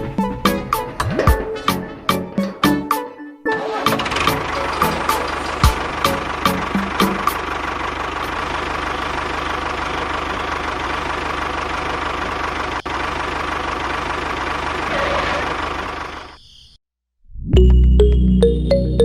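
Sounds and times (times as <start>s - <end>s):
engine idling: 3.7s - 16.4s.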